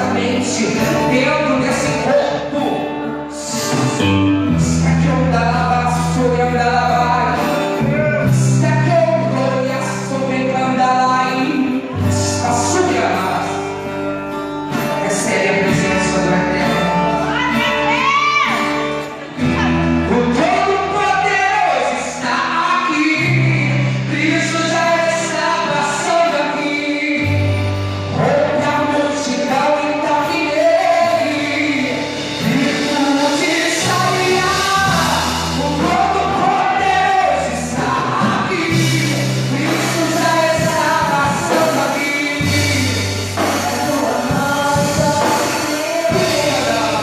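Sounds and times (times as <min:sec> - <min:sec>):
gospel group singing: 0:00.0 - 0:02.8, 0:15.0 - 0:47.0
instrumental accompaniment: 0:00.0 - 0:47.0.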